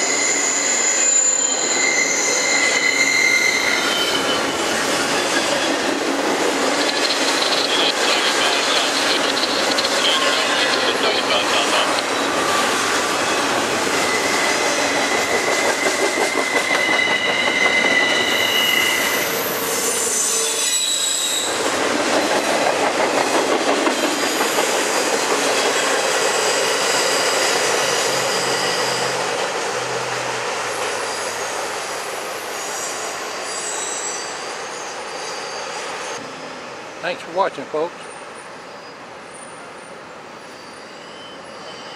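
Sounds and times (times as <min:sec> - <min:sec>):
high wheel squeal: 0:00.0 - 0:05.9, 0:06.8 - 0:21.7, 0:23.9 - 0:36.4, 0:38.0 - 0:41.9
train wheels rumbling and clattering: 0:03.8 - 0:19.6, 0:21.4 - 0:32.2.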